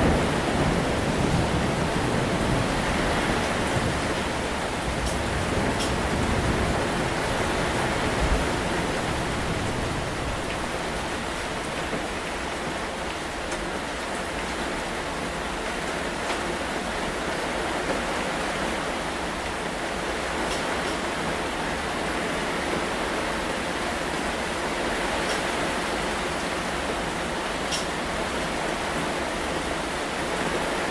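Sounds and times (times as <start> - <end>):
distant thunder rumble: 0.0 - 12.7
heavy rain falling: 0.0 - 30.9.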